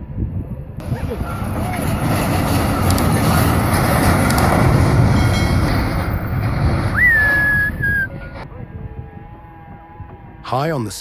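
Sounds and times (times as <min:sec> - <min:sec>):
wind on microphone: 0:00.0 - 0:10.5
heavy vehicle rumbling: 0:00.8 - 0:08.5
high whistle-like tone: 0:06.9 - 0:08.4.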